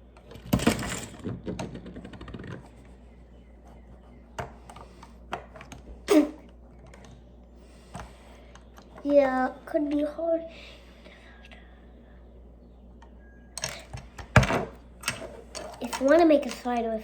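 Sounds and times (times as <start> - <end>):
plastic bricks clattering and clicking: 0.3 - 2.8.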